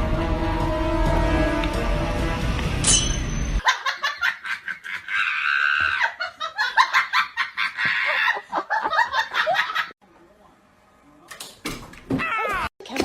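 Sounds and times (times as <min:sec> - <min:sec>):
music: 0:00.0 - 0:03.6
high-pitched laughter: 0:03.6 - 0:09.9.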